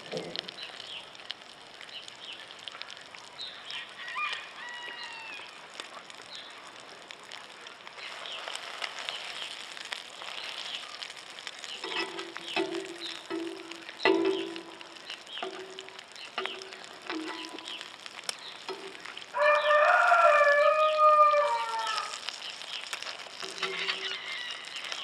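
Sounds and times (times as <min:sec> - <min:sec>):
sausage sizzling in frying pan: 0:00.0 - 0:25.0
metal spatula in pan: 0:10.2 - 0:19.3, 0:23.1 - 0:24.7.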